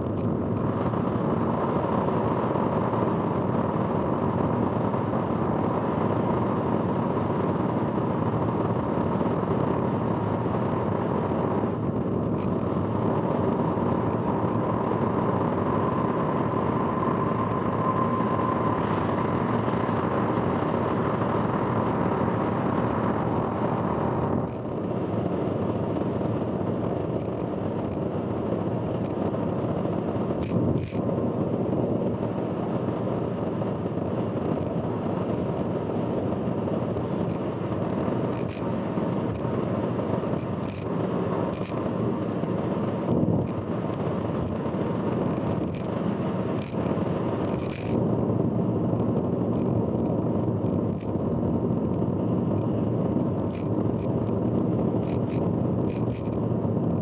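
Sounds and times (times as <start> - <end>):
car road noise from inside: 13.5 - 31.0
sharp clicks and ticks: 22.8 - 24.8, 26.2 - 31.0, 33.1 - 46.0, 46.6 - 48.0, 48.9 - 57.0.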